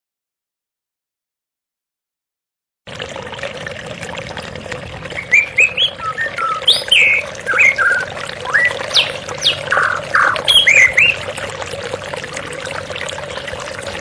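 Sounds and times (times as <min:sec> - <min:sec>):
flowing water: 0:02.9 - 0:14.0
songbird singing: 0:05.2 - 0:11.4.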